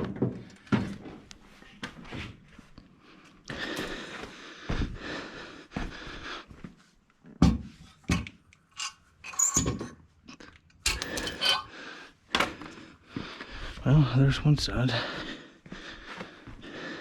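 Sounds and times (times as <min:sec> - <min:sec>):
metal parts scraping: 0:08.7 - 0:09.8, 0:10.8 - 0:11.7.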